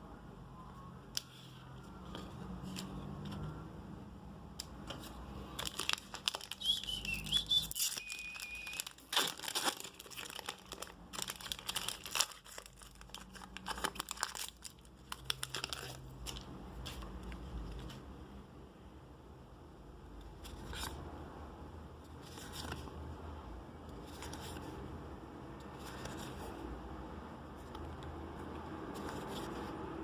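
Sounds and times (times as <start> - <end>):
packaging crinkling and tearing: 5.5 - 16.5
high wavering whistle tone: 6.6 - 8.9.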